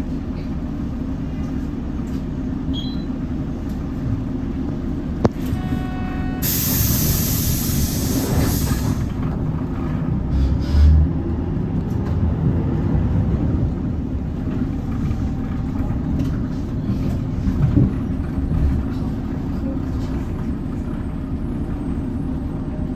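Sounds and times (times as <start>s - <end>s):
bus engine running: 0.0s - 22.9s
compressed air hiss: 6.4s - 9.2s.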